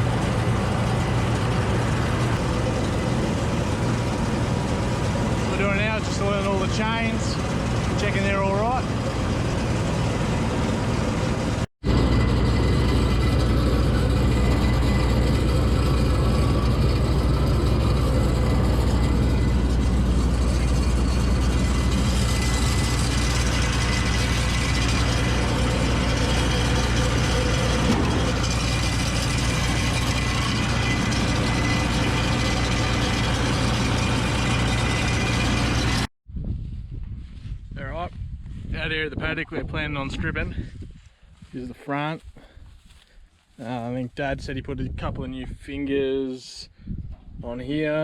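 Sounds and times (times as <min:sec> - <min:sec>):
combine harvester running: 0:00.0 - 0:36.1.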